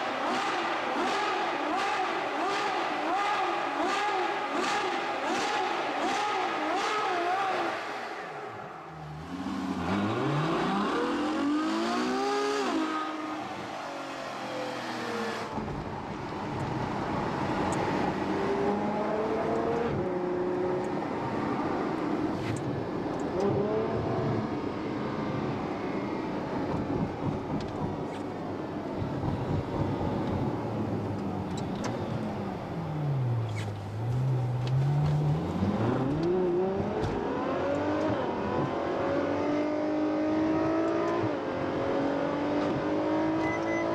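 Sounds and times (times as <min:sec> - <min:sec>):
car engine accelerating: 0:09.0 - 0:21.8, 0:29.0 - 0:43.9.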